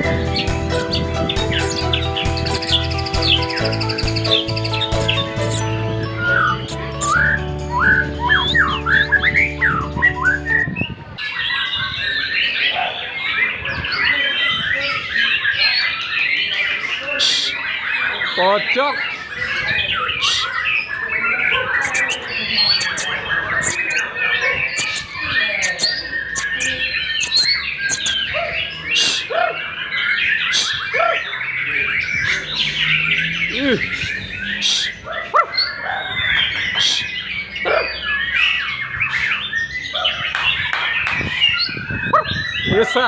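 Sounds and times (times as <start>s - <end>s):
background music: 0.0s - 10.6s
songbird singing varied song: 0.0s - 43.0s
bird warbling and whistling: 0.4s - 12.6s, 19.2s - 43.0s.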